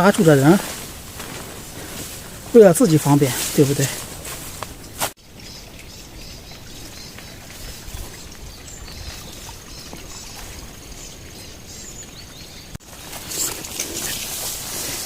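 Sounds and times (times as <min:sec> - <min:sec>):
rustling hiss: 0:00.0 - 0:05.2, 0:12.8 - 0:15.0
small birds chirping: 0:00.0 - 0:14.3.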